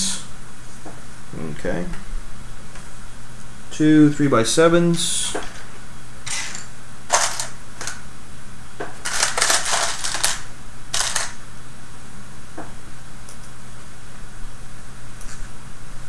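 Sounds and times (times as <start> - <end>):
plastic parts clicking and clattering: 6.3 - 8.0, 9.0 - 11.4.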